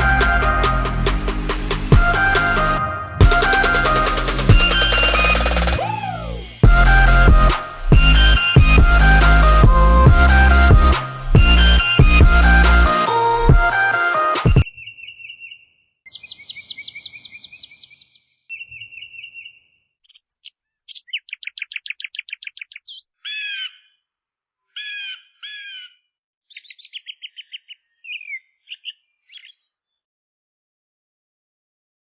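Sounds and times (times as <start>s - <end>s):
songbird singing: 14.6s - 30.0s.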